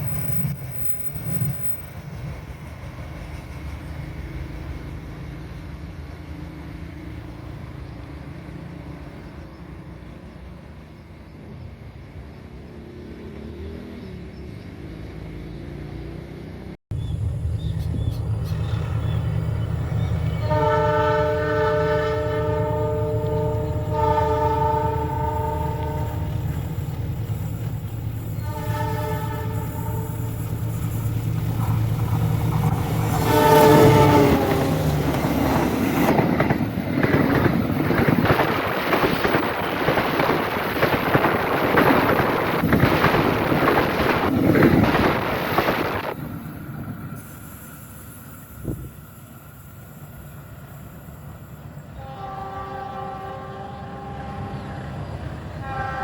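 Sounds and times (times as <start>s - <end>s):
diesel locomotive rumbling: 0.0s - 56.0s
locomotive horn blasts: 20.3s - 26.4s, 28.3s - 30.4s, 33.1s - 34.9s, 51.9s - 54.8s, 55.5s - 56.0s.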